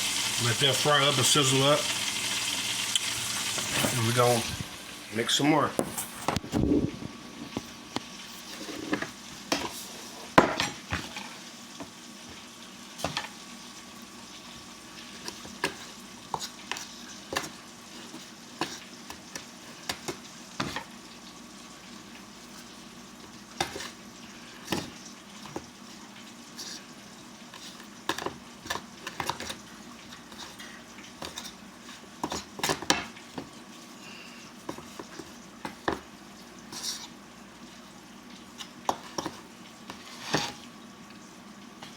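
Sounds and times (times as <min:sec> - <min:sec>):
chicken sizzling in hot oil: 0:00.0 - 0:06.3, 0:07.2 - 0:41.9.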